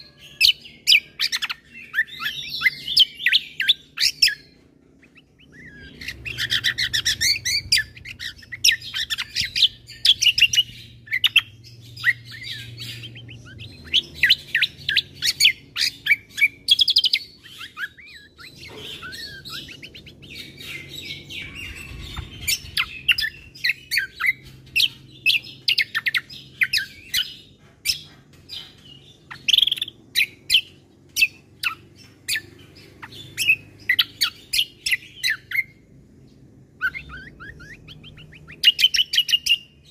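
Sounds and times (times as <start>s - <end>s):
faint low hum: 0.0s - 39.9s
songbird singing: 0.0s - 39.9s.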